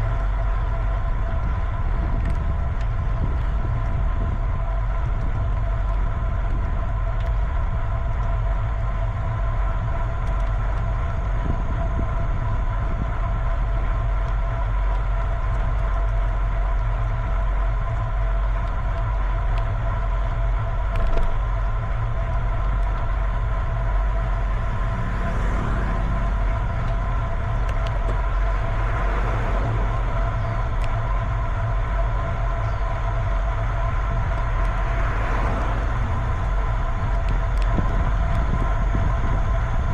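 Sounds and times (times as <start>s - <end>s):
multi-tone hum: 0.0s - 39.9s
wind rumble on microphone: 0.0s - 39.9s.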